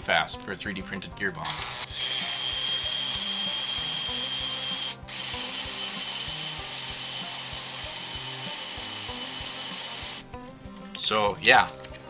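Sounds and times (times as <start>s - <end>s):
die grinder high whine: 1.4s - 10.2s.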